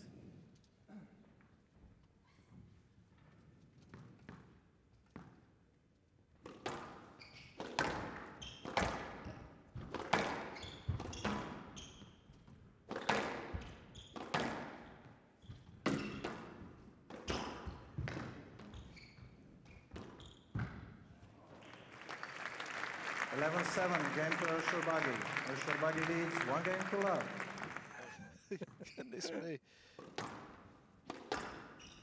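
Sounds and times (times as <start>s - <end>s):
shoe squeaks: 18.7s - 20.6s, 31.7s - 32.0s.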